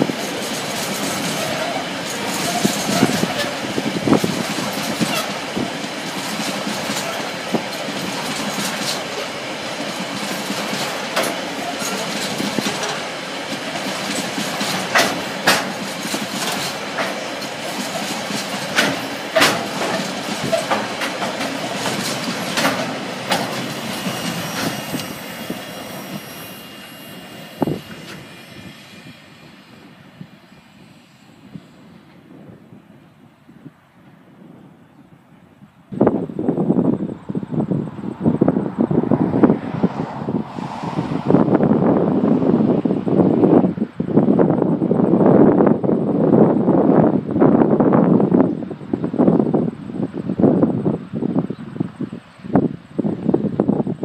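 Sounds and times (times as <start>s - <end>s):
train wheels clicking over rail joints: 0.0s - 32.4s
freight train rumble: 0.0s - 54.0s.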